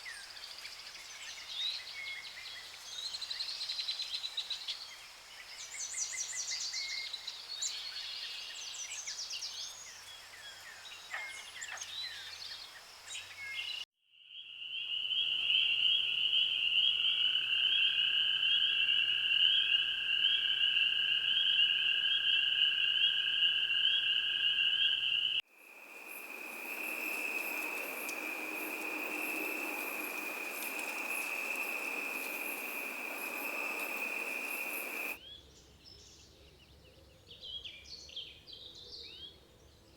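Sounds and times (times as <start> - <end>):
hiss: 25.6 - 35.2
birds chirping and whistling: 26.0 - 35.2.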